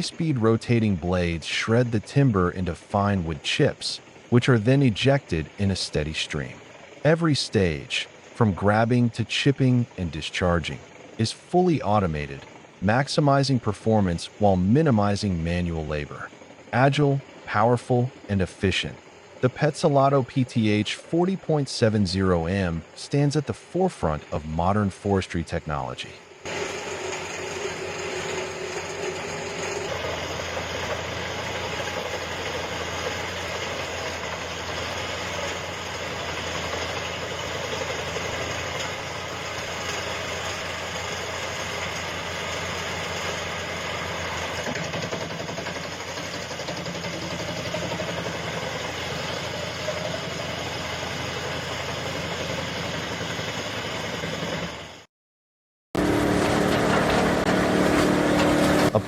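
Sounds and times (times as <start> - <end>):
wood chipper droning: 0.0 - 55.0, 56.0 - 59.0.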